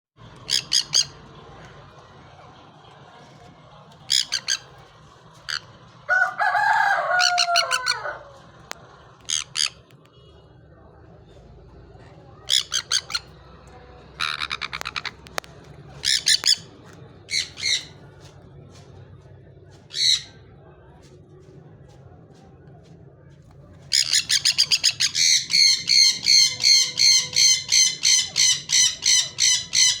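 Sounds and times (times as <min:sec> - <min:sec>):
parakeet screeching: 0:00.4 - 0:01.2, 0:04.1 - 0:04.7, 0:06.5 - 0:08.2, 0:09.2 - 0:09.8, 0:12.5 - 0:13.4, 0:14.2 - 0:15.2, 0:16.0 - 0:16.6, 0:23.9 - 0:30.0
parakeet squawking: 0:00.4 - 0:01.2, 0:04.1 - 0:04.8, 0:05.4 - 0:05.7, 0:07.2 - 0:08.1, 0:09.2 - 0:09.9, 0:12.4 - 0:13.4, 0:14.2 - 0:15.3, 0:16.0 - 0:16.7, 0:17.3 - 0:17.9, 0:23.9 - 0:30.0
parakeet wavering low call: 0:25.2 - 0:30.0.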